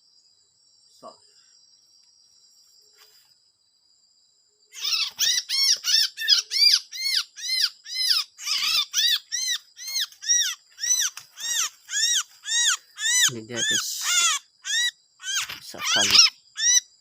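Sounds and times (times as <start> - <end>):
songbird harsh distress calls: 4.7 - 17.0.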